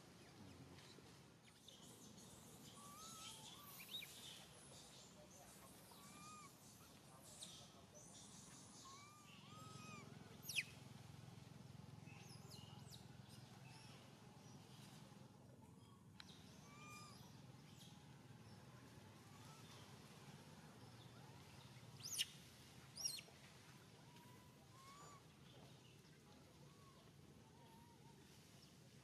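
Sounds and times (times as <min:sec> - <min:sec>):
birds chirping: 0:00.2 - 0:10.8, 0:20.8 - 0:22.4.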